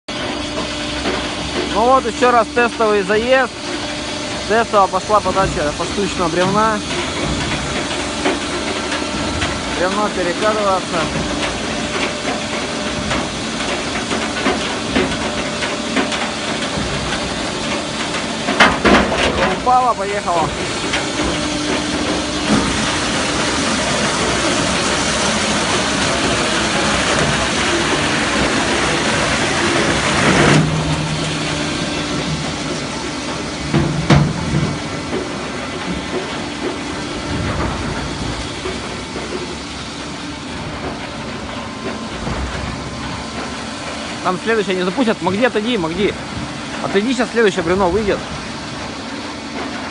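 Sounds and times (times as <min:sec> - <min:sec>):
steady machine noise: 0:00.1 - 0:49.9
log knocking and clattering: 0:04.9 - 0:39.7.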